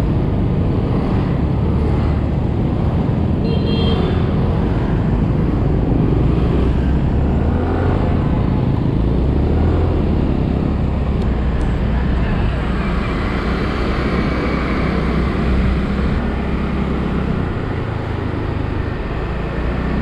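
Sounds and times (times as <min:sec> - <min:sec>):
motorbike traffic: 0:00.0 - 0:20.0
wind rushing over microphone: 0:04.0 - 0:20.0.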